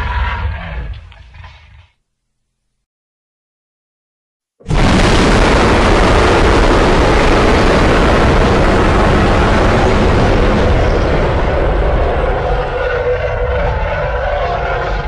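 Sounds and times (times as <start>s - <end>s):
monster roar: 4.8s - 15.0s.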